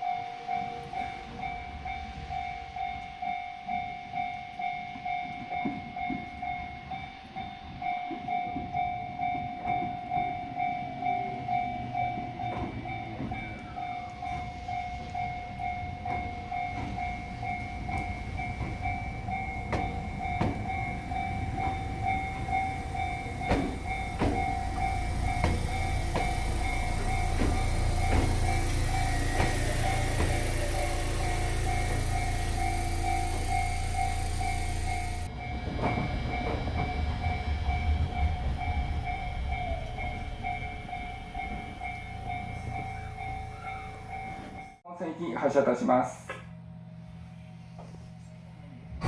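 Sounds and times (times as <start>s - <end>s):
train rumble from on board: 0.0s - 44.9s
pulsing warning tone: 11.6s - 44.8s.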